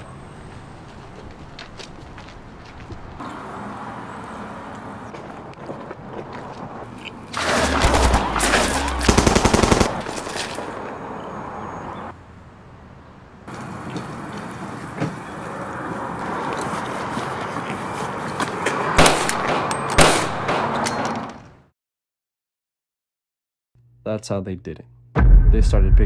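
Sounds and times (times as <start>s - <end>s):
automatic gunfire burst: 7.4s - 10.1s
loud single gunshots: 19.0s - 20.6s.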